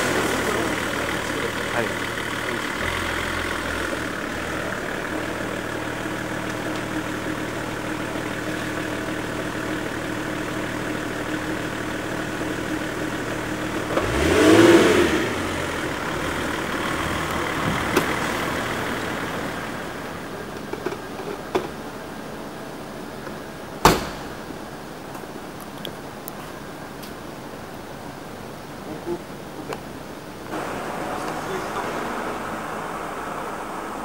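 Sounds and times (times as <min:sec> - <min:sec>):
vehicle passing by: 0:00.0 - 0:05.6, 0:30.5 - 0:34.0
car engine idling: 0:00.0 - 0:34.0.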